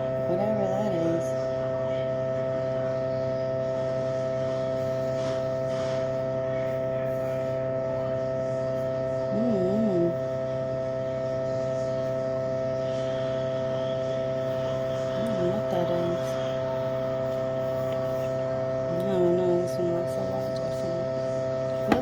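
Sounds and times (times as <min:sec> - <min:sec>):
electrical hum: 0:00.0 - 0:22.0
person's voice murmuring: 0:09.3 - 0:10.2.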